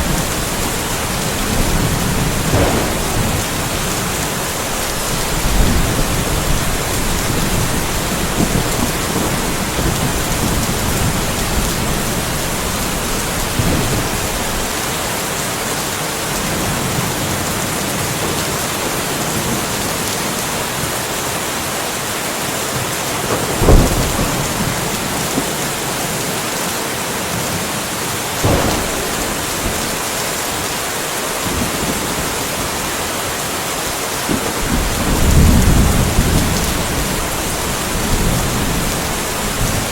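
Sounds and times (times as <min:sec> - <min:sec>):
sharp thunderclap: 0:00.0 - 0:14.7, 0:23.3 - 0:25.5, 0:28.4 - 0:32.4, 0:34.3 - 0:39.9
low thunder rumbling: 0:00.0 - 0:14.9, 0:23.3 - 0:26.2, 0:28.4 - 0:32.9, 0:34.3 - 0:39.9
steady rain: 0:00.0 - 0:39.9.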